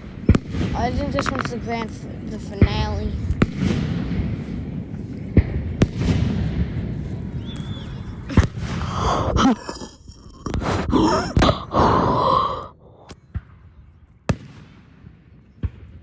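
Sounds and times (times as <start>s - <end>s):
fireworks bangs and crackling: 0.0s - 8.8s, 14.3s - 16.0s
fireworks sharp booms: 0.0s - 8.8s.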